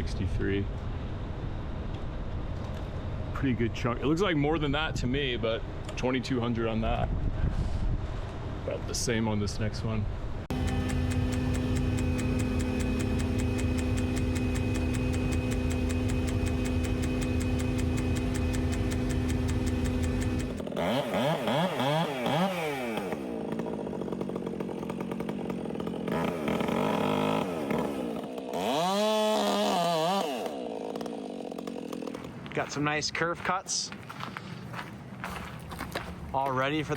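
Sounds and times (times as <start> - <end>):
engine drone: 10.1 - 32.8
chainsaw cutting wood: 10.5 - 32.6.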